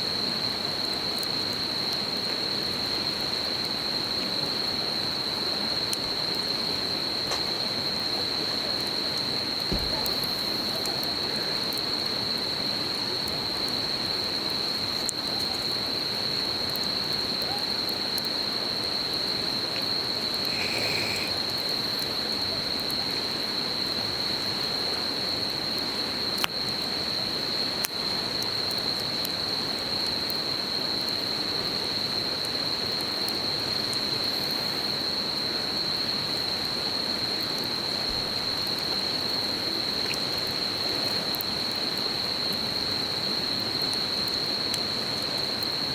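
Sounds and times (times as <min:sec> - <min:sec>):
campfire crackles: 0:00.0 - 0:45.9
high-pitched insect chorus: 0:00.0 - 0:45.9.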